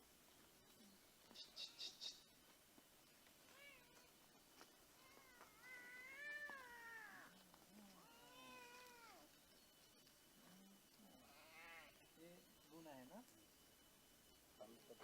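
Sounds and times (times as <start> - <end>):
cat meowing: 5.0 - 7.3, 8.0 - 9.3.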